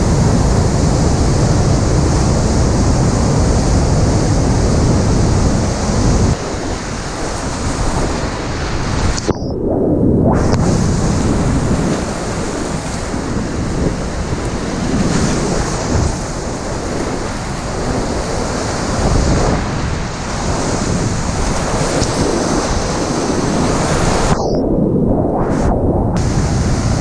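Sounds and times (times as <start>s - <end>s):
wind buffeting microphone: 0.0s - 27.0s
river rapid rushing: 26.2s - 27.0s.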